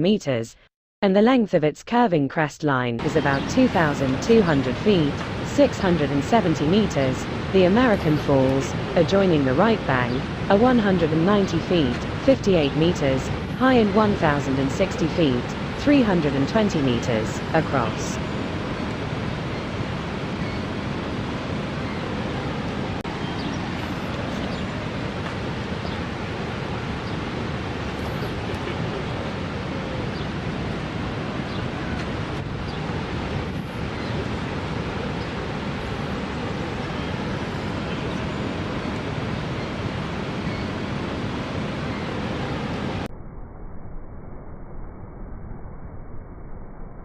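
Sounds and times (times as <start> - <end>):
waterfall roar: 15.4 - 43.1.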